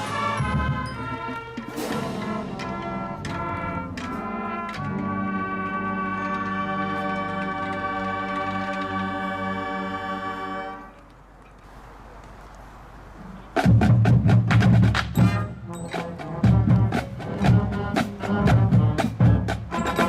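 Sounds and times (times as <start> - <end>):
band playing drum-driven beat: 0.0 - 5.8, 13.5 - 20.0.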